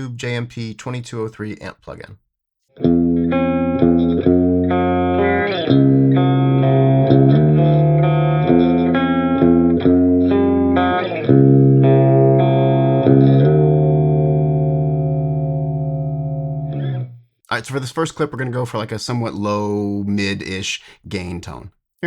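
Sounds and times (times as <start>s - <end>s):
overdriven electric guitar riff: 2.7s - 17.2s.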